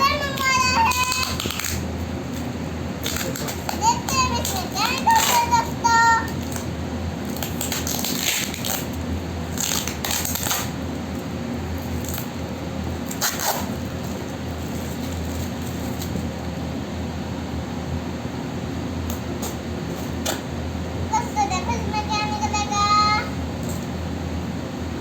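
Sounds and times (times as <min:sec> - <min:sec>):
steady low hum: 0:00.0 - 0:25.0
packaging being torn open: 0:00.9 - 0:01.8, 0:07.3 - 0:10.7, 0:13.0 - 0:13.9.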